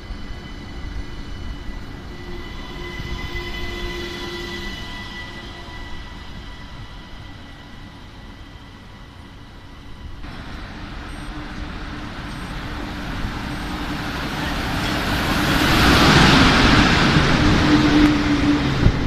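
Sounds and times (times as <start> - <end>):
electric train whine: 0.0 - 19.0
locomotive hum: 0.0 - 19.0
train wheels rumbling: 0.0 - 19.0.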